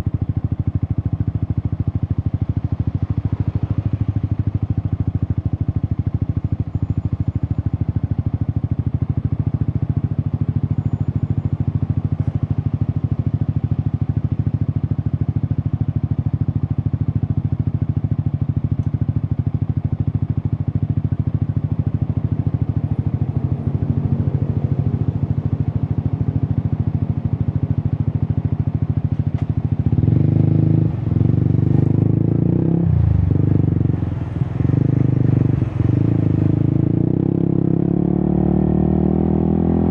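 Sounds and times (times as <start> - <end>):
motorcycle engine exhaust note: 19.3 - 39.9.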